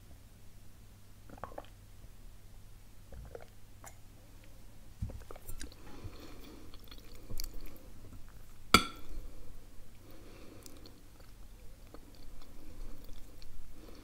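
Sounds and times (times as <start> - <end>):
person chewing: 5.2 - 8.6, 10.5 - 14.0.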